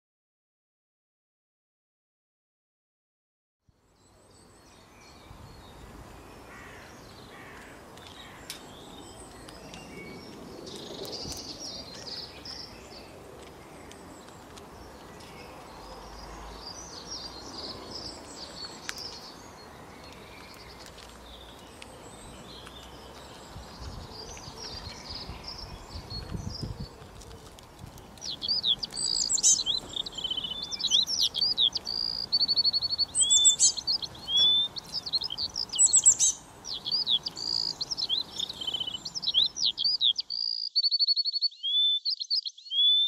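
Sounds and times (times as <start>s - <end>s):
outdoor background hiss: 3.7s - 26.1s, 28.0s - 40.6s
small birds chirping: 3.8s - 43.0s.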